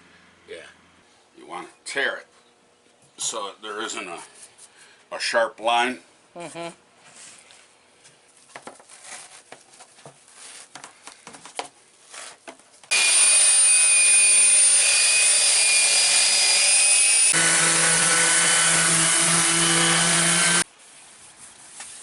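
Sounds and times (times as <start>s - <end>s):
electric sander whining: 12.9s - 20.6s.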